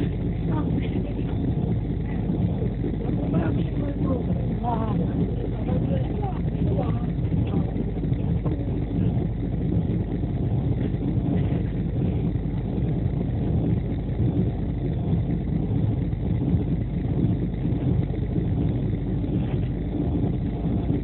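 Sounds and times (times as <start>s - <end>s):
train running at speed: 0.0s - 21.0s.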